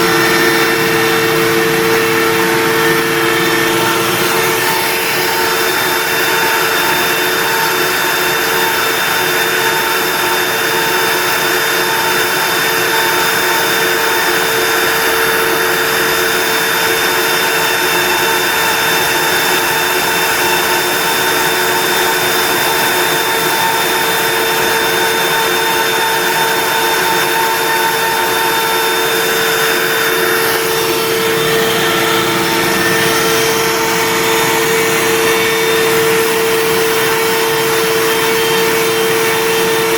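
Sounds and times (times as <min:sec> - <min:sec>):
router spindle motor whine: 0:00.0 - 0:39.9.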